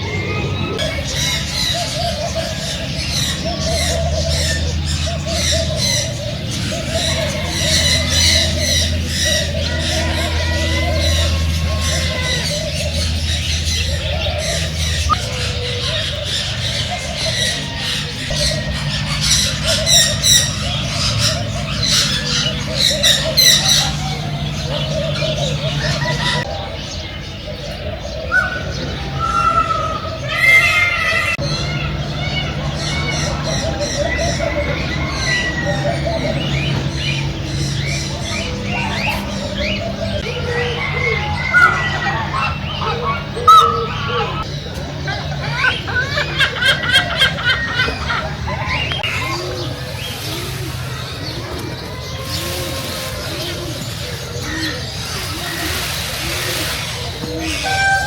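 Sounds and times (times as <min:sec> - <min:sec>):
steady low hum: 0:00.0 - 0:26.7
birds squawking: 0:00.0 - 0:58.0.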